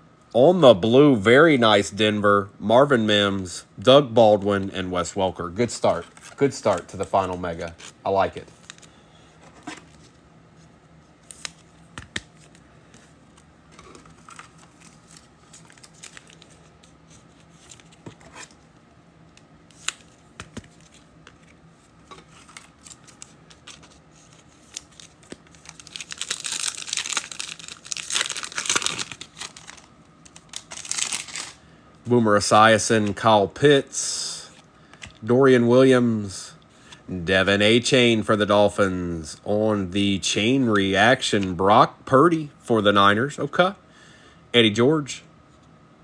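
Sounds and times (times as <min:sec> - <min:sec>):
cards clicking and tapping: 0:11.3 - 0:12.6, 0:19.7 - 0:21.5
foil wrapper tearing and crinkling: 0:22.4 - 0:31.6.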